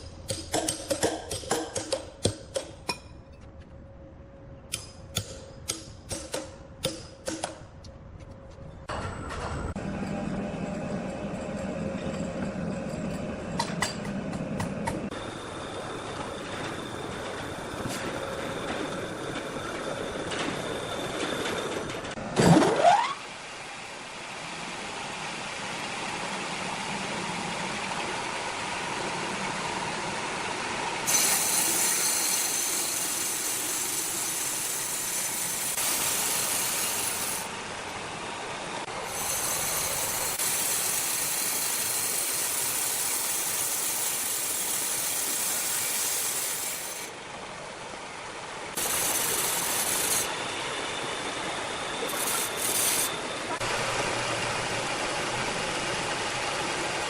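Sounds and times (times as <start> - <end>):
sawmill machinery running: 8.9 - 22.4, 23.3 - 57.0
saw cutting timber: 31.1 - 37.5, 38.9 - 47.1, 48.8 - 50.4, 52.0 - 53.6.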